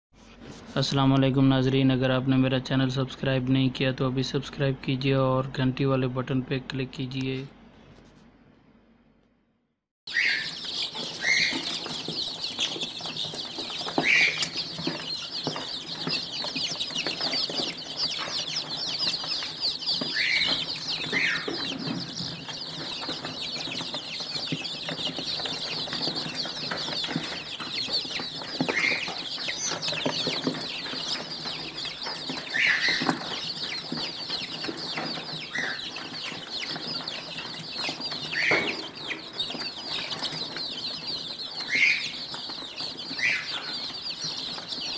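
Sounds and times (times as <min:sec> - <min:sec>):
louder lower chick calls: 0:10.1 - 0:12.0, 0:13.8 - 0:14.7, 0:20.0 - 0:21.8
chicks peeping: 0:10.1 - 0:44.9.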